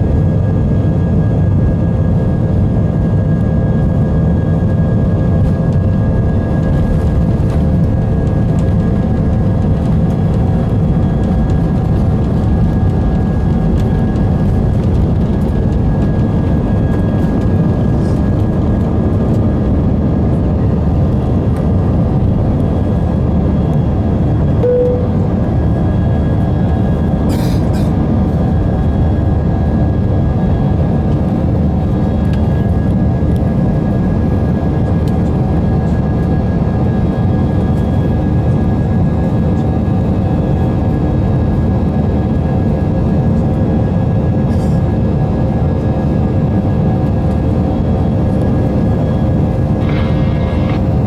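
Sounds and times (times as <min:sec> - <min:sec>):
jet engine cabin rumble: 0:00.0 - 0:51.0
brief tone: 0:24.6 - 0:26.2, 0:49.8 - 0:51.0.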